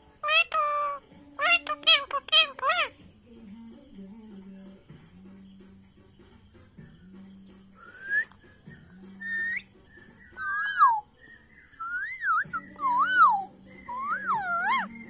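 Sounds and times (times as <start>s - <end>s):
parrot whistling: 9.2s - 9.7s, 10.4s - 11.0s, 11.8s - 15.0s.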